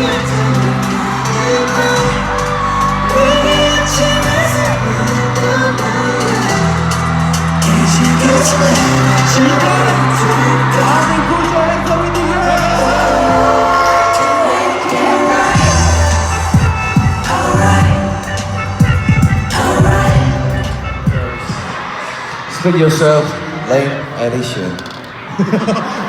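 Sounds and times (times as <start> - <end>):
live pop music: 0.0 - 23.4
crowd shouting and whooping: 0.0 - 26.0.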